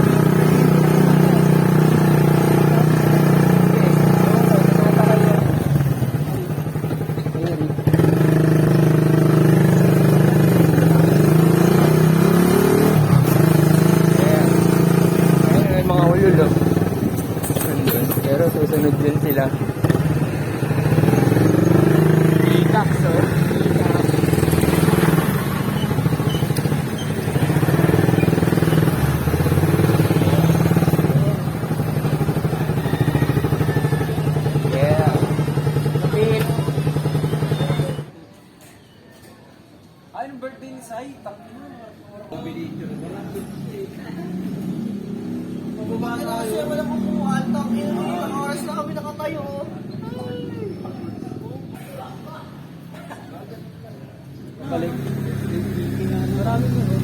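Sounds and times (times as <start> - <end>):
motorcycle engine drone: 0.0 - 38.2.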